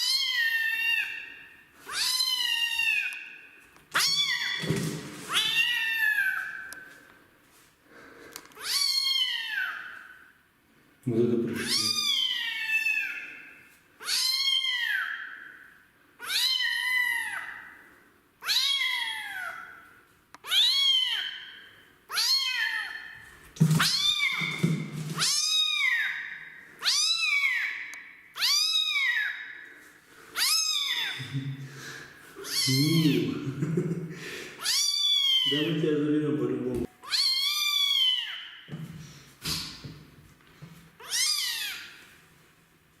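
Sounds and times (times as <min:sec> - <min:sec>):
kitten meowing loudly: 0:00.0 - 0:01.2, 0:01.9 - 0:03.2, 0:03.9 - 0:04.7, 0:05.3 - 0:06.7, 0:08.6 - 0:10.0, 0:11.6 - 0:13.3, 0:14.0 - 0:15.4, 0:16.2 - 0:17.6, 0:18.4 - 0:19.8, 0:20.4 - 0:21.4, 0:22.1 - 0:23.0, 0:23.7 - 0:29.4, 0:30.4 - 0:31.3, 0:32.4 - 0:33.4, 0:34.6 - 0:35.7, 0:37.0 - 0:38.4, 0:41.0 - 0:41.9.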